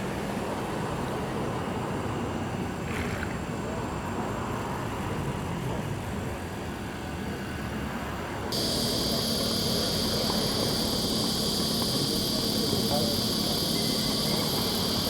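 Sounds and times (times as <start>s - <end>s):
high-pitched insect chorus: 8.5s - 15.0s.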